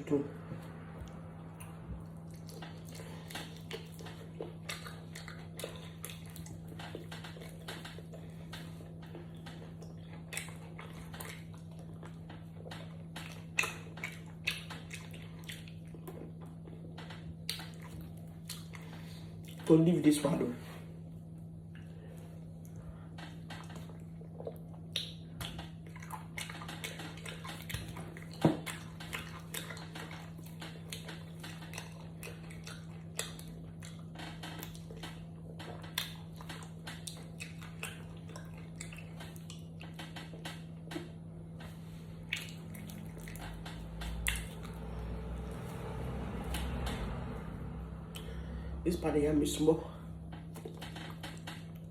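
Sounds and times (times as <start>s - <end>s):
steady low hum: 0.0s - 51.9s
chewing: 0.6s - 19.8s, 21.7s - 48.7s, 50.3s - 51.9s.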